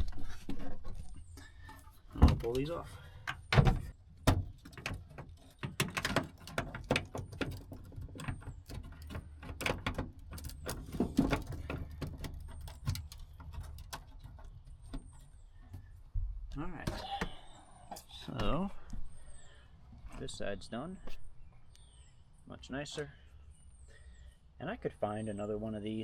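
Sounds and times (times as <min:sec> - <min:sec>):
plastic car parts clicking and rattling: 0:00.6 - 0:15.9.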